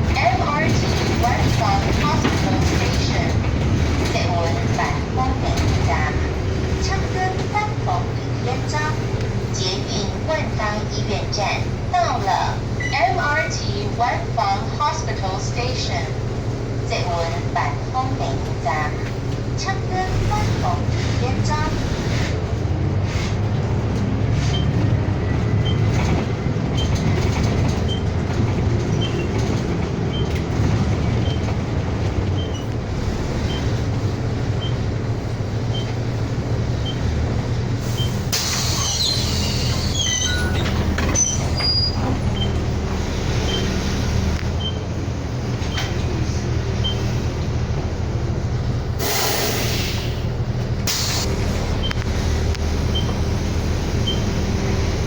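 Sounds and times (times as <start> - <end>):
bus engine running: 0.0 - 55.0
high squeals: 37.9 - 43.8
short hiss: 49.0 - 50.2.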